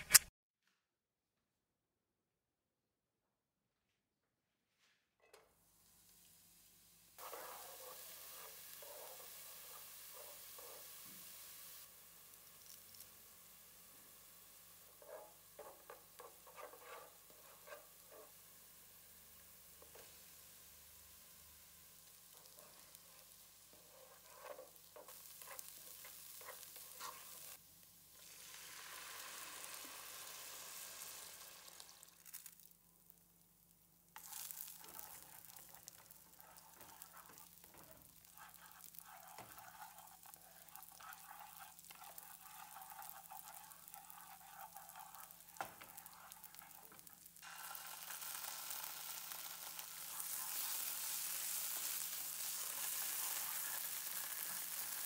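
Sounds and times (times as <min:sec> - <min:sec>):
utensils scraping and tapping: 0:00.0 - 0:00.3, 0:14.9 - 0:18.3, 0:22.6 - 0:27.5, 0:34.2 - 0:47.2
food sizzling in oil: 0:05.7 - 0:55.0.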